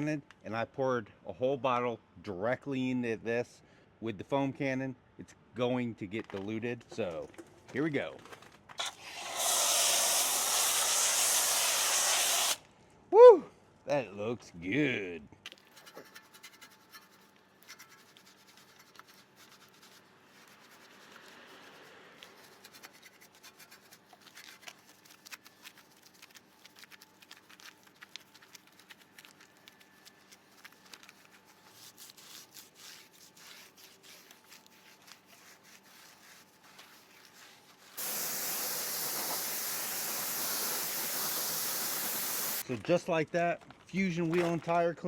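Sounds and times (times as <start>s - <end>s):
pressure washer spraying water: 8.8s - 12.6s, 38.0s - 42.6s
faint scratching and rubbing: 15.6s - 38.0s.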